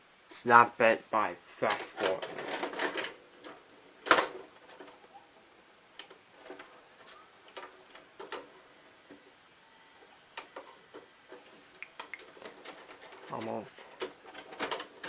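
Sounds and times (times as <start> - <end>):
tape deck mechanism clicking: 11.9 - 15.0.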